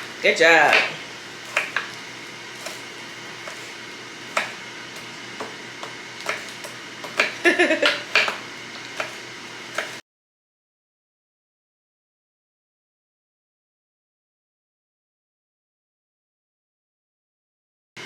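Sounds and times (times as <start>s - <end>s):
knife chopping on cutting board: 0.0s - 10.0s.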